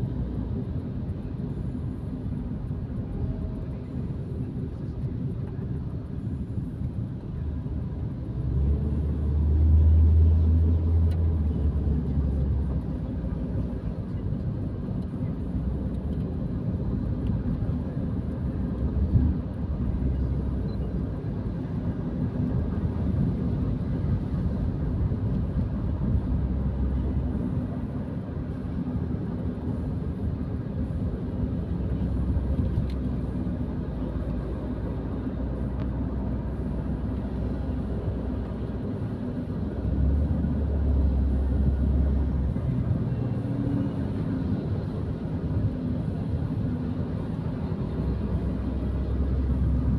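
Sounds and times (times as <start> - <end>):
car engine and tyre noise: 0.0 - 49.9.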